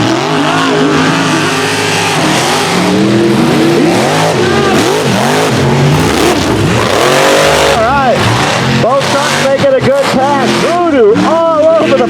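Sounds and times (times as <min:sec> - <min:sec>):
truck engines revving hard: 0:00.0 - 0:12.0.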